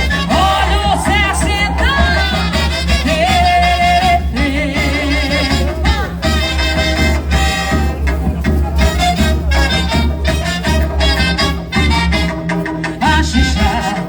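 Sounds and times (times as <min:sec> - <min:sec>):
wavering melody notes: 0:00.0 - 0:05.0
dense low drum beat: 0:00.0 - 0:06.5.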